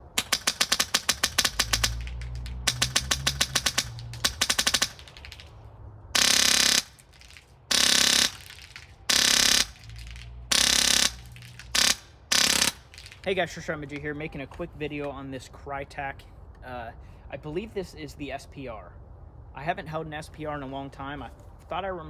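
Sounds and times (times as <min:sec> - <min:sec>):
airsoft rifle full-auto bursts: 0:00.0 - 0:05.4, 0:06.2 - 0:13.2.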